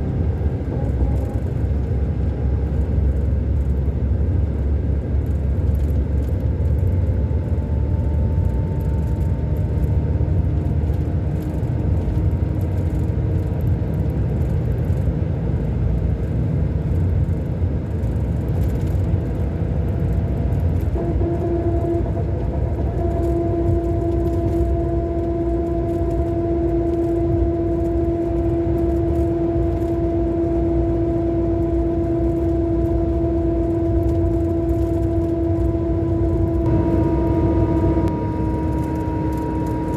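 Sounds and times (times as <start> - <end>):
diesel engine rumble: 0.0 - 39.9
steady whine: 20.1 - 39.9.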